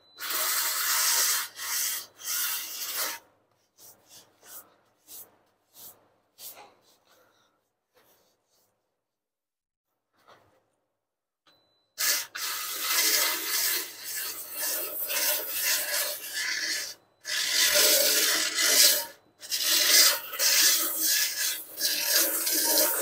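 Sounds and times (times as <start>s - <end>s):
sandpaper rasping on filler: 0.2s - 7.2s, 12.0s - 23.0s.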